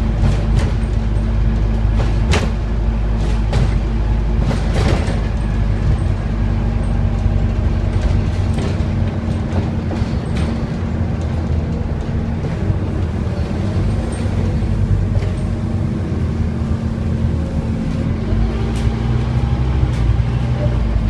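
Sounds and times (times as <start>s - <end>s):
sharp knocks and rattles: 0.0s - 12.6s
bus diesel engine drone: 0.0s - 21.0s.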